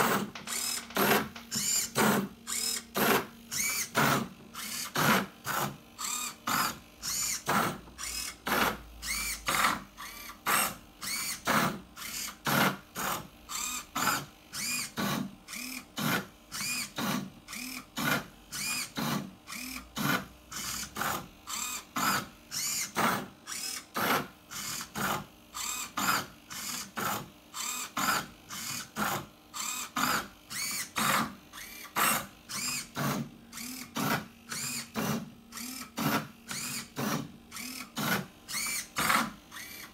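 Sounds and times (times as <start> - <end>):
stepper motor whine: 0.0 - 5.1.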